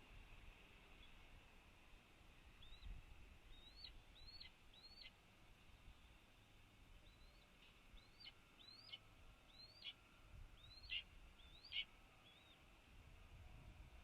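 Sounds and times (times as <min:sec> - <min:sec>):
hawk nestlings peeping: 0:03.5 - 0:05.2, 0:07.0 - 0:10.0, 0:10.6 - 0:12.6.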